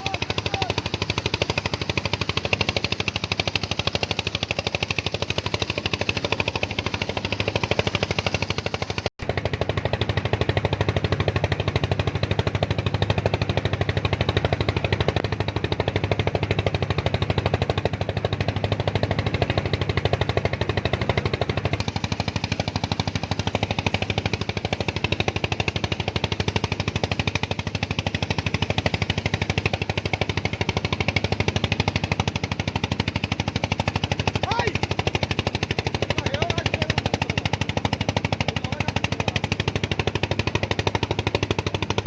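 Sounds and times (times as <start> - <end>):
small engine chugging: 0.0 - 42.0.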